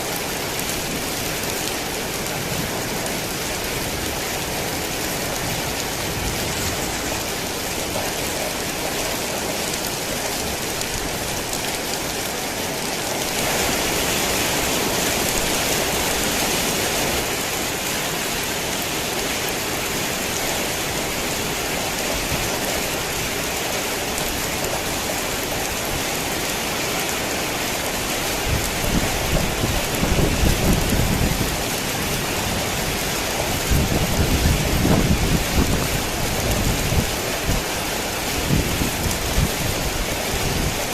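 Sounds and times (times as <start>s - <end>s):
heavy rain pouring: 0.0s - 40.9s
thunder rumbling: 28.3s - 37.7s.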